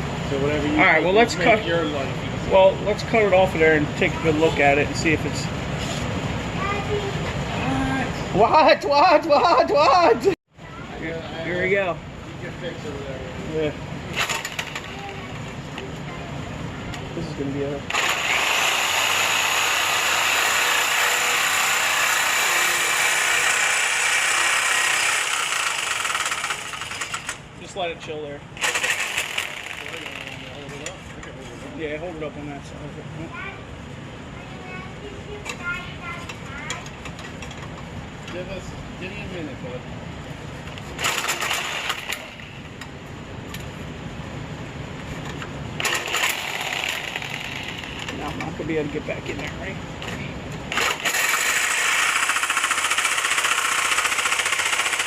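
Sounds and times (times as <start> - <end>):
power tool grinding exhaust pipe: 17.9 - 27.4, 28.6 - 30.5, 45.8 - 48.2, 50.7 - 55.0.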